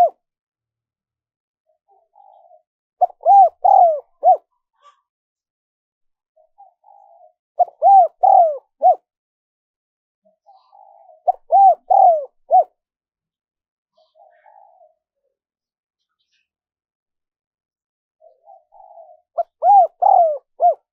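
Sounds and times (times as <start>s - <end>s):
dove cooing: 0.0s - 0.2s, 1.9s - 4.5s, 6.6s - 9.1s, 10.7s - 12.7s, 14.2s - 15.0s, 18.2s - 20.9s.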